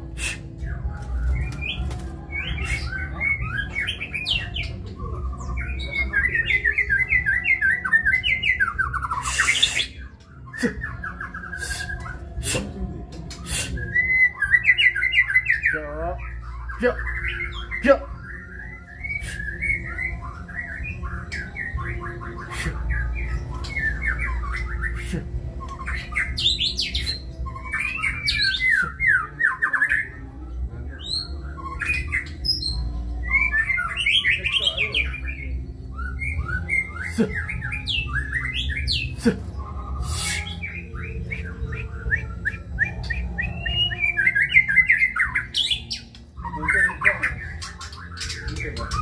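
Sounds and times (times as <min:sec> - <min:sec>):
songbird singing: 0:00.0 - 0:49.0.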